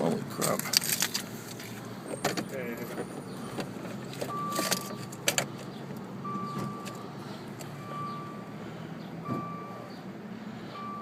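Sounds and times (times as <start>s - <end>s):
car warning chime beeping: 4.3s - 8.6s, 9.2s - 11.0s.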